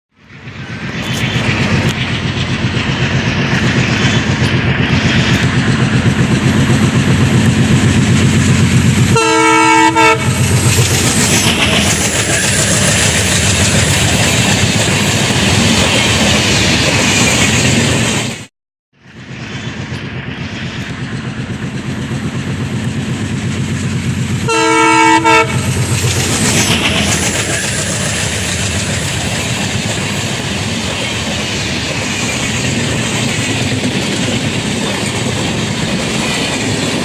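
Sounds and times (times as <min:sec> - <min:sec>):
train rumbling past: 0:00.1 - 0:37.0
locomotive horn blast: 0:09.1 - 0:10.4, 0:24.5 - 0:25.7.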